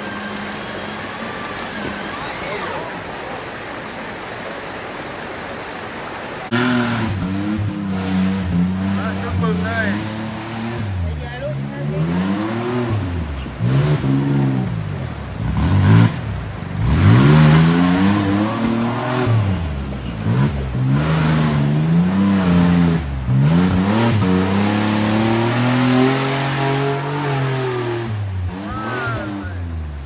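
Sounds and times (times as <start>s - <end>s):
engine revving under load: 6.5s - 30.0s.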